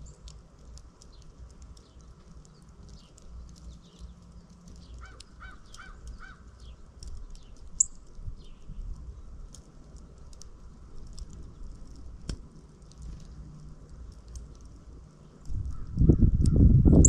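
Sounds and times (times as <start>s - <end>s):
birds chirping: 0.0s - 10.2s
larger bird calling: 4.9s - 6.5s.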